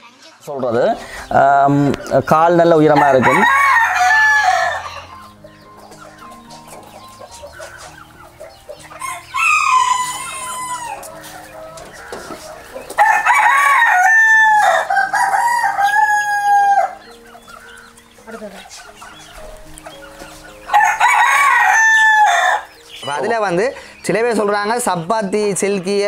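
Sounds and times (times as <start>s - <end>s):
rooster crowing: 2.9s - 5.4s, 8.8s - 11.2s, 13.0s - 17.2s, 20.7s - 22.8s.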